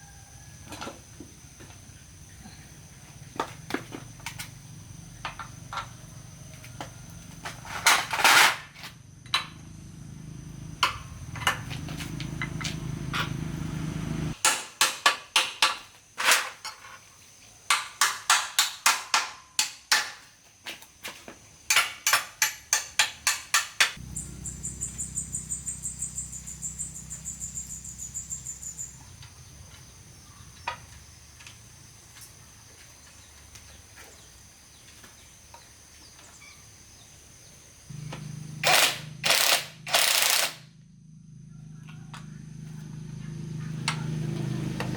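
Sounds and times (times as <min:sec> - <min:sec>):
sharp metal knocks: 0:14.4 - 0:15.8, 0:21.7 - 0:24.0
small motor humming: 0:24.0 - 0:29.1, 0:37.9 - 0:40.6.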